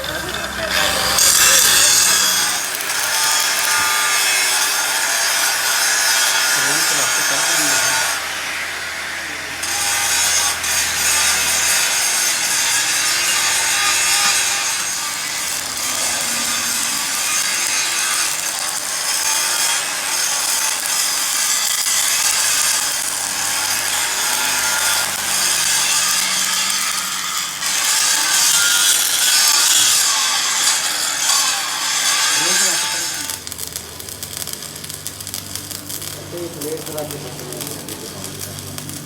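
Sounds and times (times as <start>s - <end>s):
tool rasping metal: 0.0s - 8.6s, 9.6s - 33.8s.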